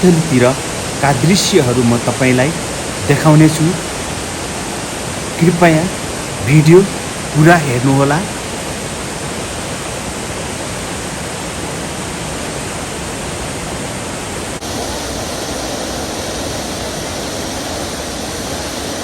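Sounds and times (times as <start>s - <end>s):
river rushing in flood: 0.0s - 19.0s.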